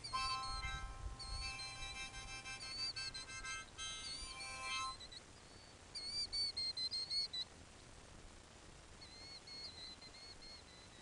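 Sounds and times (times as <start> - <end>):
harmonica playing: 0.0 - 5.1
bird chirping: 0.0 - 7.6, 9.0 - 11.0.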